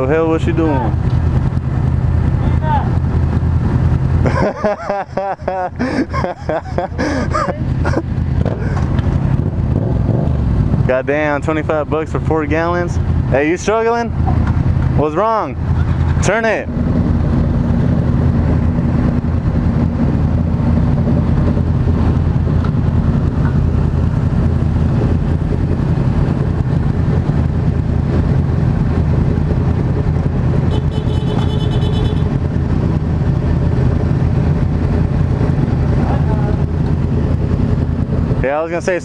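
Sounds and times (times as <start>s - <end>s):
motorcycle engine idling: 28.9s - 32.4s.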